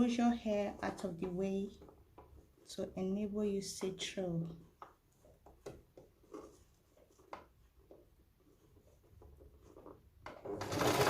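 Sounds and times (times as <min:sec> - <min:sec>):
faint handling clicks and rustles: 0:03.7 - 0:10.2.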